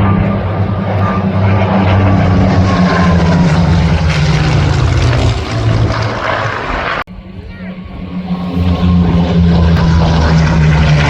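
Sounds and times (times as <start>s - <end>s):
propeller plane flying past: 0.0s - 11.0s.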